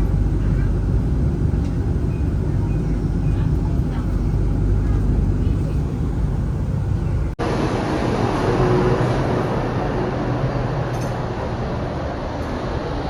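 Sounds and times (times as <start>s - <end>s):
tram rumbling and rolling: 0.0s - 13.0s.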